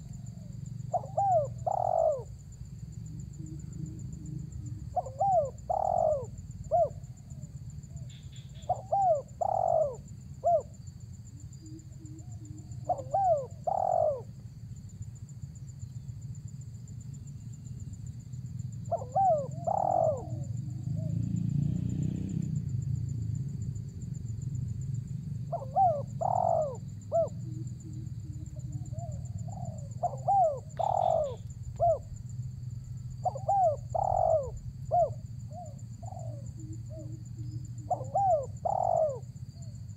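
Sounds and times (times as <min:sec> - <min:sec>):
dove cooing: 0:00.0 - 0:11.0, 0:11.6 - 0:14.4, 0:18.8 - 0:21.3, 0:25.4 - 0:32.2, 0:33.1 - 0:39.9.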